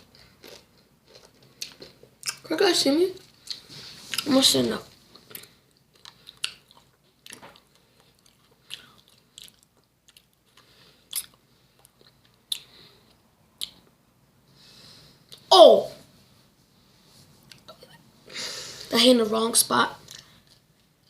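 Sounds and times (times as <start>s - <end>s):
person crunching chips: 0.0s - 2.4s.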